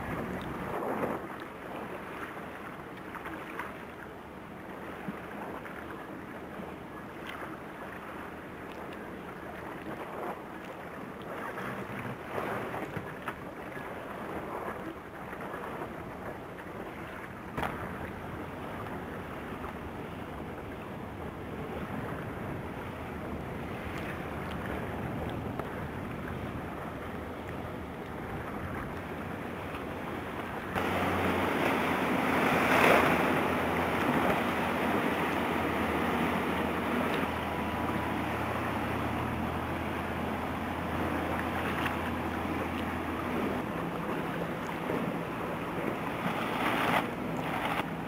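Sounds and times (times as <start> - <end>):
water splashing along boat hull: 0.0 - 48.0
wind buffeting microphone: 14.0 - 48.0.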